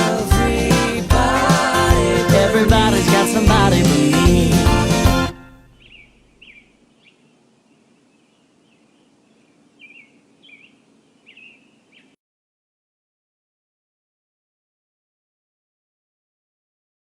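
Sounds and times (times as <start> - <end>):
low steady background noise: 5.5 - 12.2
faint bird chirps: 5.6 - 12.2.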